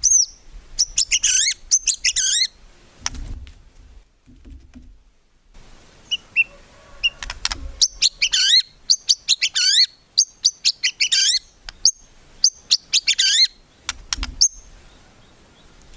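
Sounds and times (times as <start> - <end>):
songbird singing varied phrases: 0.0 - 2.6, 6.0 - 15.9.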